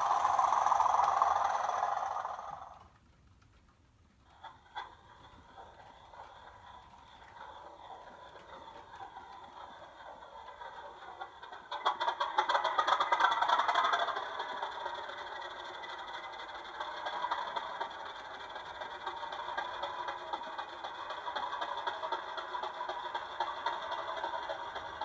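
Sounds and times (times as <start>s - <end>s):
model diesel engine sound from speaker: 0.0s - 2.9s
rattle of clicks: 0.0s - 25.0s.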